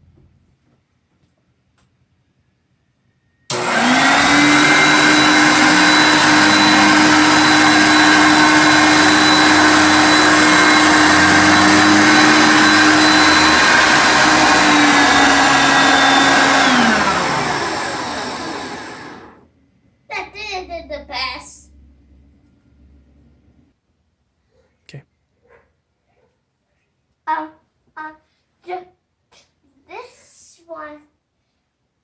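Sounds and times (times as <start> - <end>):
vacuum cleaner motor whine: 3.5 - 19.4.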